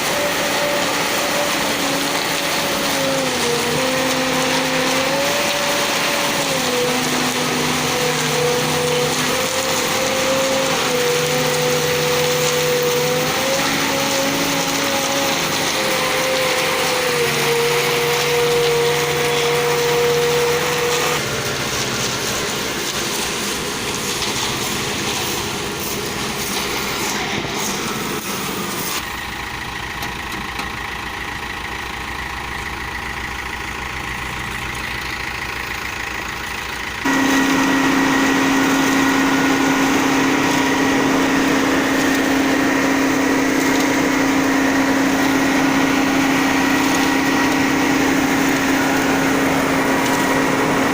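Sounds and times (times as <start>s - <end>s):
concrete mixer engine running: 0.0s - 50.9s.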